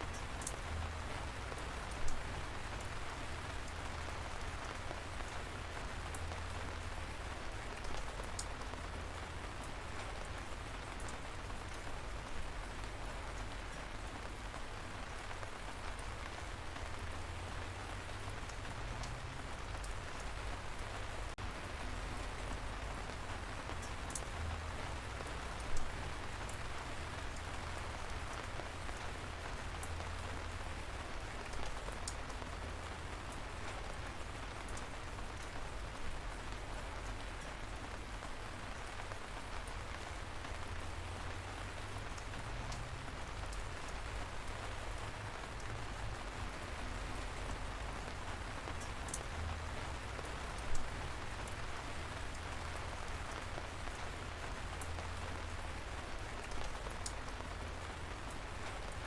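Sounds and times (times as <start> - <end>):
light rain hissing: 0.0 - 59.0
drip ticks: 18.3 - 19.2, 29.8 - 30.2, 48.7 - 49.5.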